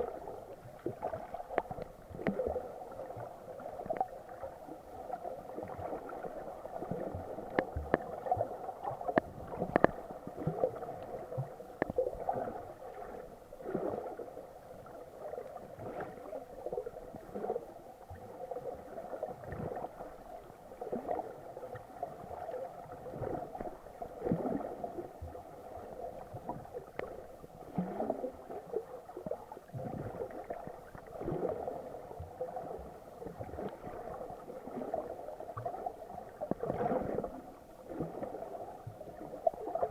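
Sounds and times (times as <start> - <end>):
muffled underwater water noise: 0.0 - 39.9
water gurgling: 0.0 - 39.9.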